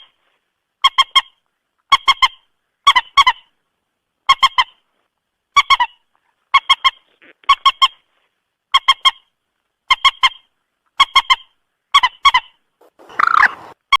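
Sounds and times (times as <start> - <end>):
moorhen calling: 9.9 - 13.8.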